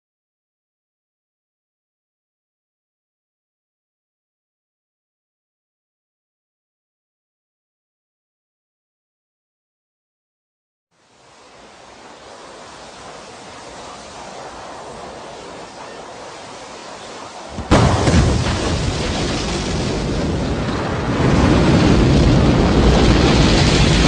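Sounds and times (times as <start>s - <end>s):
low hiss: 11.0s - 20.6s
deep rumble of rocket engines: 11.0s - 24.0s
loud crack: 17.5s - 24.0s.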